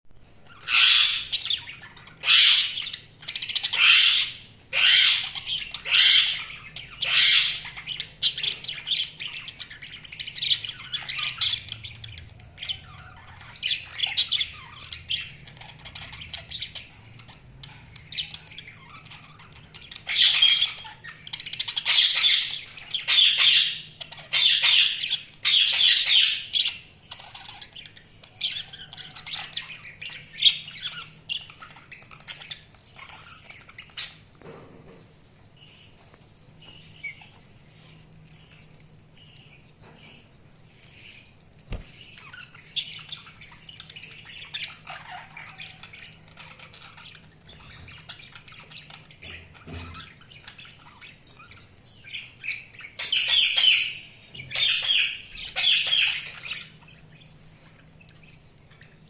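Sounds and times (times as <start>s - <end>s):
budgerigars harsh chirping: 0.3s - 34.3s, 36.6s - 59.0s
budgerigars soft chattering: 0.4s - 34.2s.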